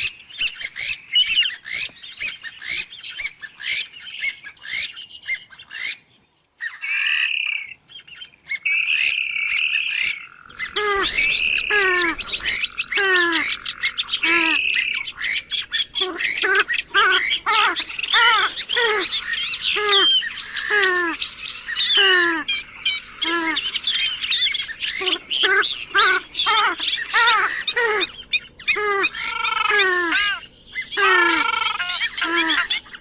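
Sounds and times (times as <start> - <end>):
swamphen calling: 0.0 - 33.0
faint high whine: 10.5 - 33.0.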